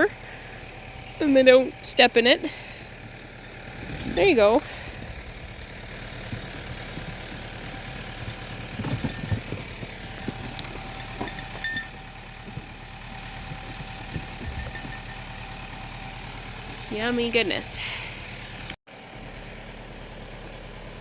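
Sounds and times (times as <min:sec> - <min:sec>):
tractor engine idling: 0:00.0 - 0:21.0
light clinks and knocks: 0:03.3 - 0:18.8.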